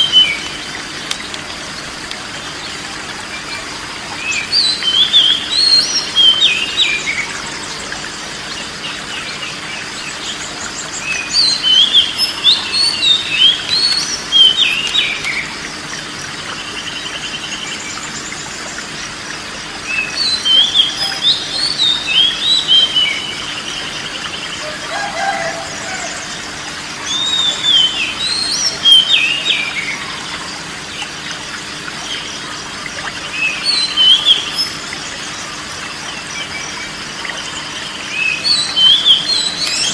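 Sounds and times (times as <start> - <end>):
bird singing whistled trills: 4.2 - 7.4, 10.7 - 15.6, 19.9 - 26.4, 27.0 - 30.3, 33.2 - 34.8, 36.2 - 39.9.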